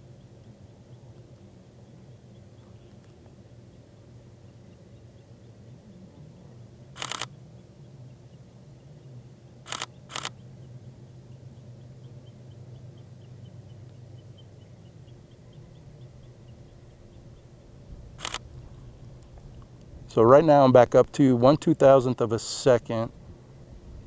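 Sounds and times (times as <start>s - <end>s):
camera shutter firing in bursts: 7.0s - 7.4s, 9.7s - 10.4s, 18.2s - 18.5s.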